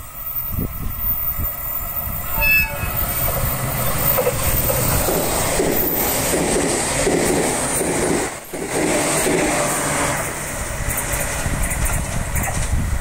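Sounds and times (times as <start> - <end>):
train passing: 0.0 - 13.0
train horn toot: 2.3 - 3.3.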